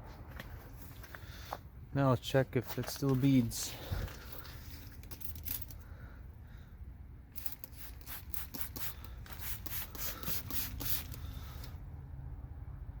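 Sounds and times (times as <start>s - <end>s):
spray bottle trigger sprays: 7.4s - 11.7s.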